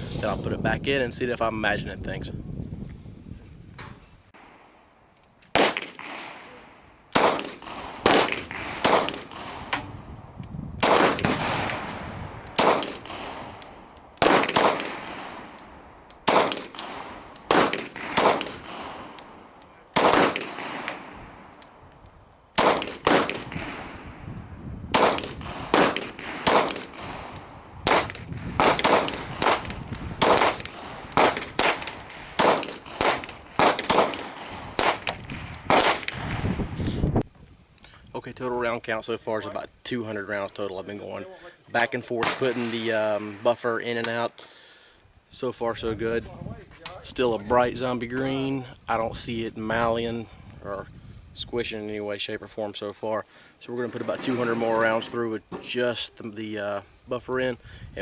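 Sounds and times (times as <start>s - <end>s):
pistol shots with ringing tail: 5.5s - 9.9s, 10.8s - 21.8s, 22.6s - 24.2s, 24.9s - 36.4s, 42.2s - 43.5s.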